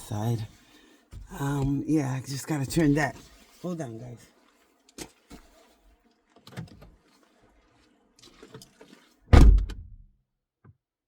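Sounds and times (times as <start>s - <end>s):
faint rustles and knocks: 0.3s - 9.3s
car door slamming shut: 9.3s - 10.0s.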